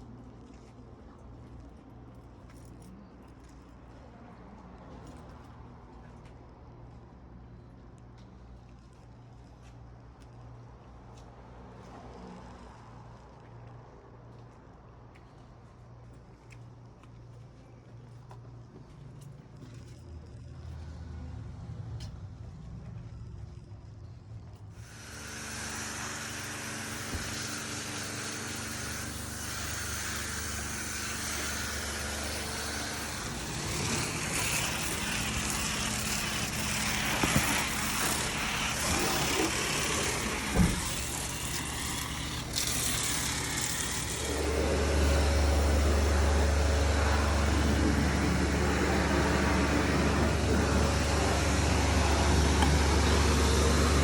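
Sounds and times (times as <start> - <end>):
car engine and road noise: 18.4 - 54.0.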